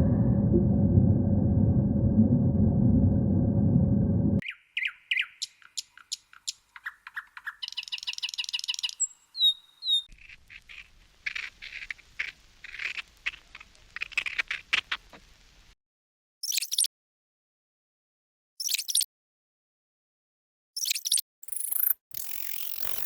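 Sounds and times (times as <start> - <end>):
loud low noise: 0.0 - 4.4
small animals chirping and squeaking: 4.4 - 14.7, 18.6 - 19.0.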